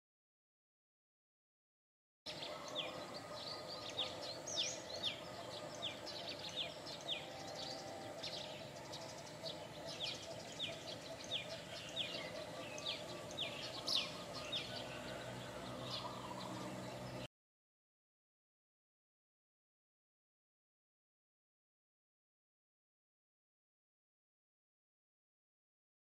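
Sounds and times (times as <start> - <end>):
small birds chirping: 2.3 - 17.3
steady background hum: 2.4 - 17.3.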